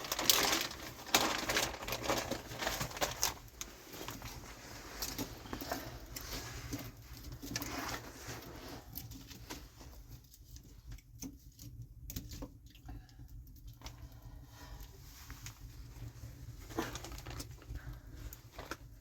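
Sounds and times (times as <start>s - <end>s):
rustling and light tapping: 0.0s - 14.0s.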